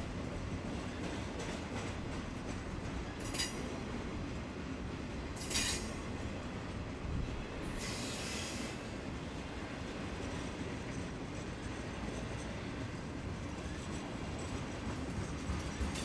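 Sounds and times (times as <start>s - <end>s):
train rumbling past: 0.0s - 16.0s.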